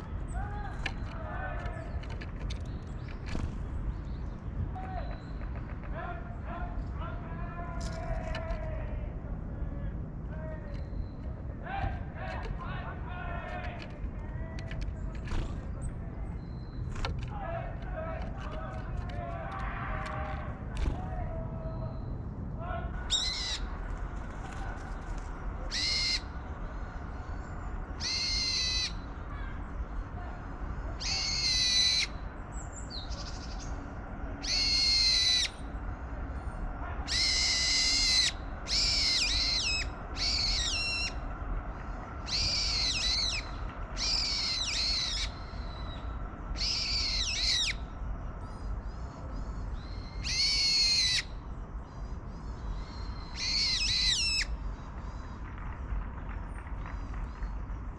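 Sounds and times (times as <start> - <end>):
wild birds calling: 22.9 - 57.8.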